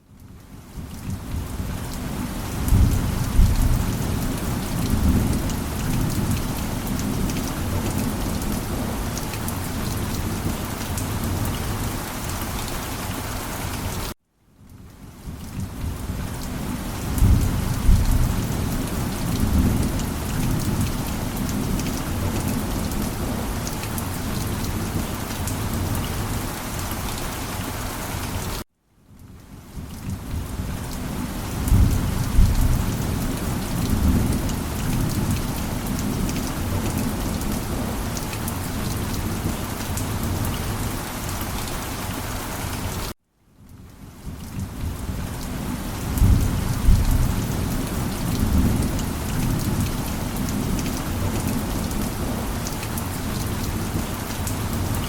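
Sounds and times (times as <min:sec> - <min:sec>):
steady rain: 0:00.0 - 0:55.0
low rolling thunder: 0:02.6 - 0:09.0, 0:17.0 - 0:23.6, 0:31.6 - 0:38.0, 0:44.6 - 0:52.6.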